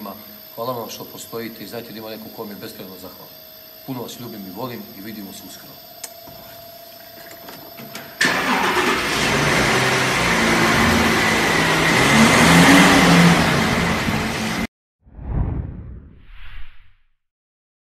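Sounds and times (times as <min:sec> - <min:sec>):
car engine revving hard: 0:08.2 - 0:14.7.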